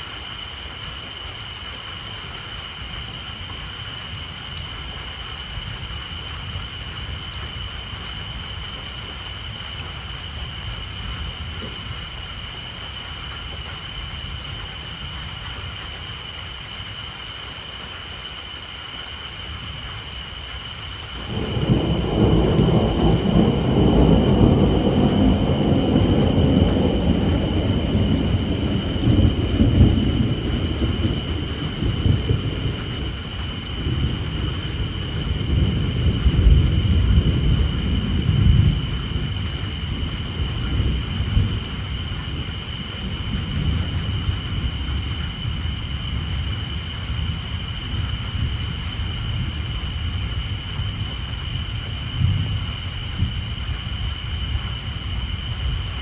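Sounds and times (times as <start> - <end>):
rain on a tin roof: 0.0 - 56.0
tree frogs chorus: 1.3 - 56.0
rolling thunder: 21.1 - 56.0.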